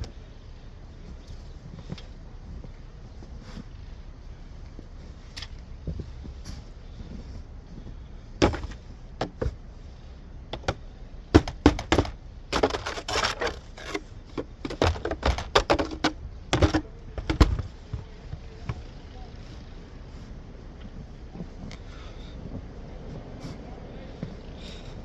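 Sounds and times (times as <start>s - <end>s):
snow shovel scraping ground: 6.1s - 18.6s.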